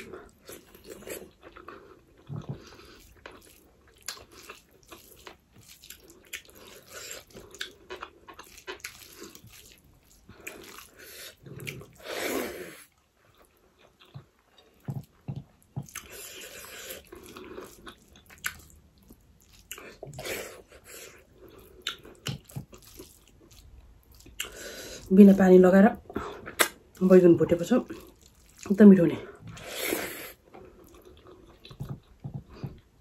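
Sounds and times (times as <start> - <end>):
chewing and lip smacks: 0.0 - 12.0, 13.2 - 24.6, 26.4 - 27.0, 27.8 - 28.7.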